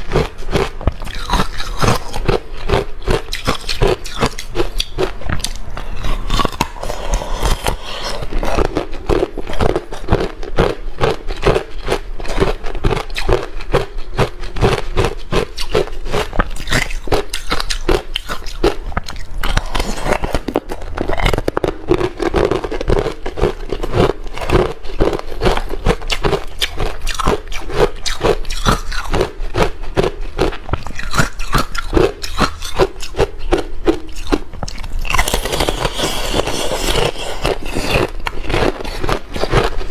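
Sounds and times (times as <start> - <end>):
person chewing ice cubes: 0.0 - 39.9.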